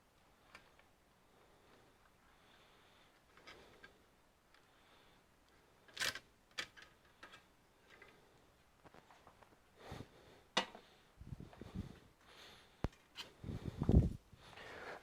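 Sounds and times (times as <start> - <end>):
clicks and knocks of computer parts: 5.9 - 8.1.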